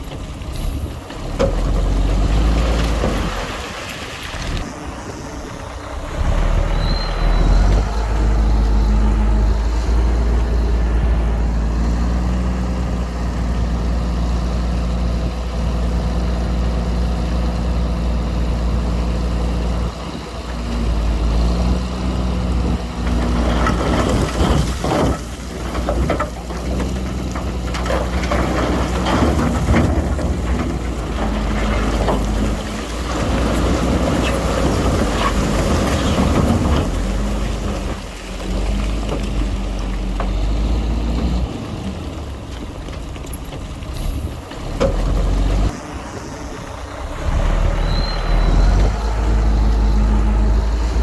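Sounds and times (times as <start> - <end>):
diesel machinery engine drone: 0.0 - 51.0
metal clanking and knocking: 23.0 - 38.0.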